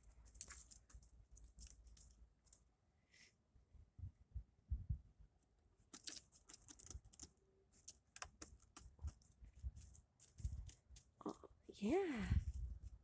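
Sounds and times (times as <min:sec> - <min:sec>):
irregular clicking and scratching: 0:00.0 - 0:02.7, 0:05.4 - 0:11.7
soft low thumps: 0:04.0 - 0:05.1.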